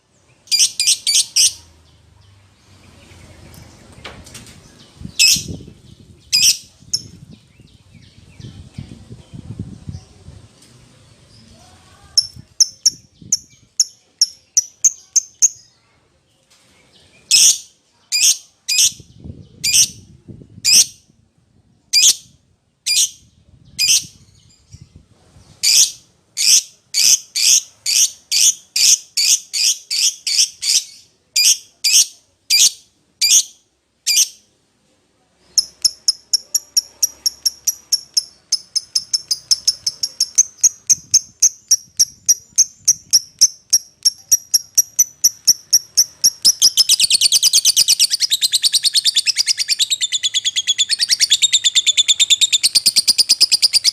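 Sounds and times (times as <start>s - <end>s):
lovebird shrill chirping: 0.5s - 1.6s, 5.1s - 5.6s, 6.3s - 7.2s, 35.5s - 53.9s.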